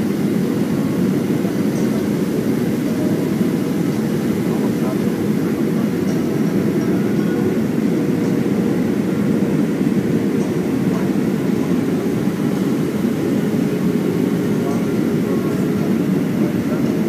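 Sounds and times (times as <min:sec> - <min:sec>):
airplane cabin airflow and engines: 0:00.0 - 0:17.0.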